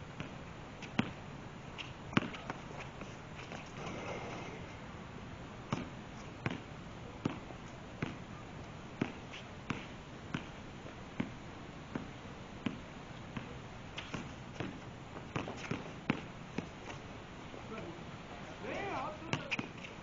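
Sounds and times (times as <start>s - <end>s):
basketball bouncing on court: 2.1s - 2.6s, 5.7s - 7.4s, 8.0s - 8.2s, 9.0s - 10.6s, 11.2s - 16.7s.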